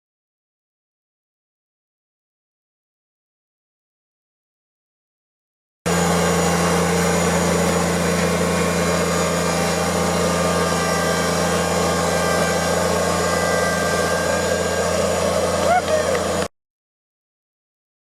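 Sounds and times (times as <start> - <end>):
tractor diesel engine running: 5.9 - 16.5.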